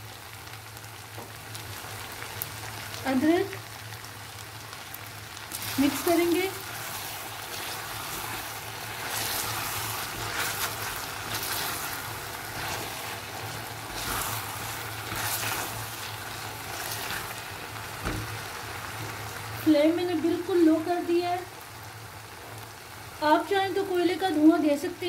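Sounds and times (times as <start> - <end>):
meat sizzling in a wok: 0.0 - 25.0
spatula stirring: 5.5 - 18.6.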